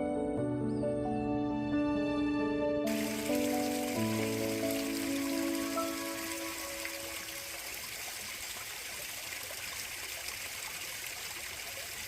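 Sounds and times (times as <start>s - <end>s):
stream water rushing: 2.9s - 12.0s.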